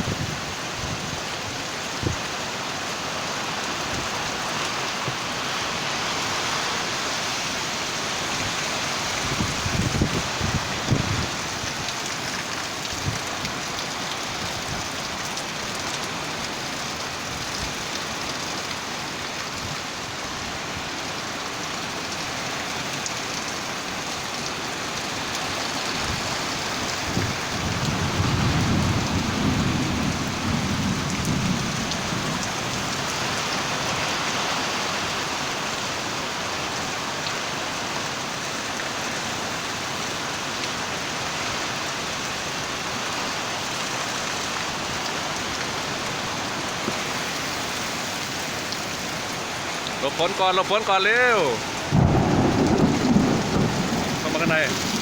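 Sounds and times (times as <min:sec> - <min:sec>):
heavy rain falling: 0:00.0 - 0:55.0
rumble of thunder: 0:27.1 - 0:33.2, 0:51.9 - 0:55.0.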